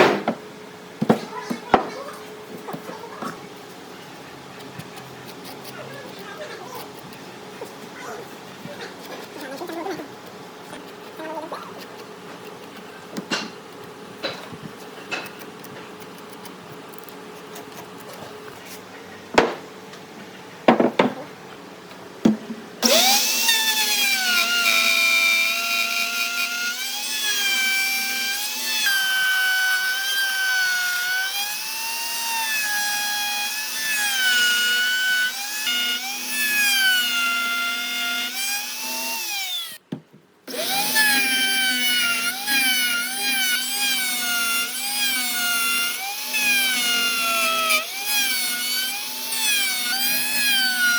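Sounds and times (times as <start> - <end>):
power tool whining on wood: 22.8 - 39.8, 40.5 - 50.9.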